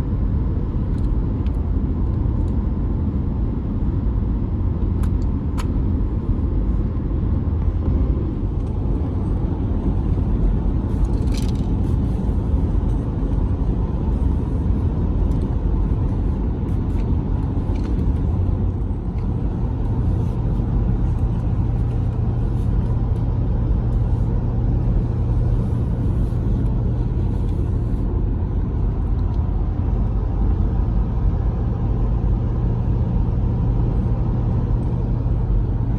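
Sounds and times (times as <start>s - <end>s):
steady low hum: 0.0s - 35.9s
steady low rumble: 0.0s - 35.9s.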